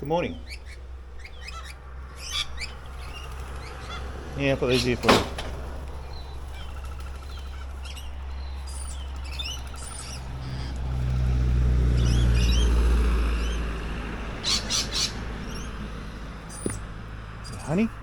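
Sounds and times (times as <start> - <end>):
birds chirping and calling: 0.0 - 18.0.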